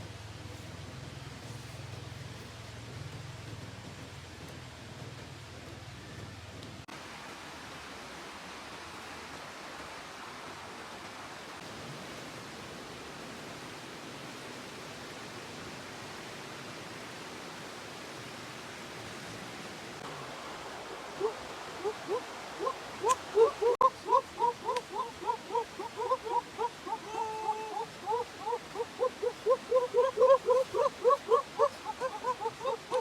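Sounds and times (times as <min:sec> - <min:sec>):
steady rushing hiss: 0:00.0 - 0:33.0
short rising animal calls: 0:21.1 - 0:33.0.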